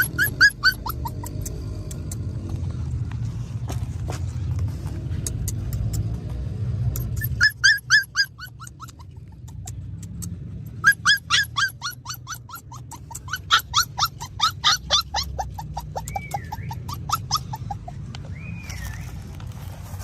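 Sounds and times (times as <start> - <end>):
puppy yelping: 0.0 - 2.2, 6.9 - 19.2.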